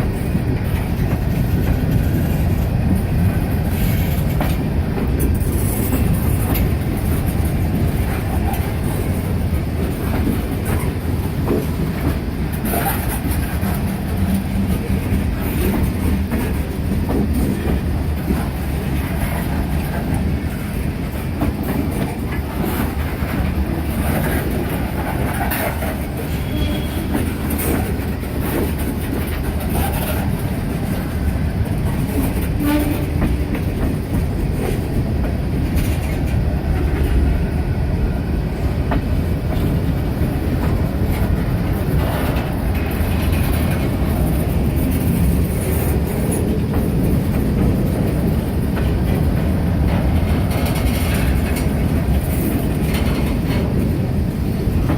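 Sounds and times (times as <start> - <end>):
freight train cars clattering: 0.0 - 54.9
faint wheel squeal: 26.4 - 27.2.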